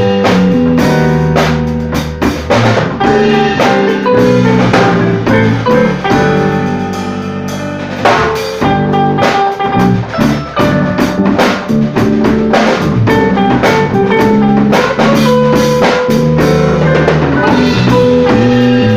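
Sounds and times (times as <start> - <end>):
band playing: 0.0 - 18.9
drum kit beat: 0.0 - 18.9.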